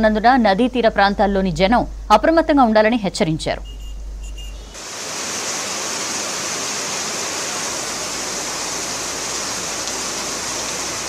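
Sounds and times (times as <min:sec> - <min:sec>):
heavy rain hissing: 0:04.6 - 0:11.0.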